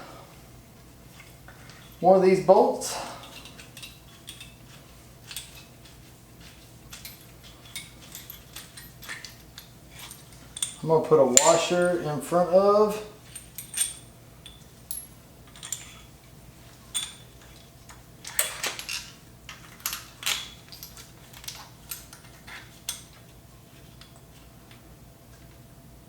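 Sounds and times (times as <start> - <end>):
metal hardware clinking: 10.0 - 12.0, 13.3 - 16.0.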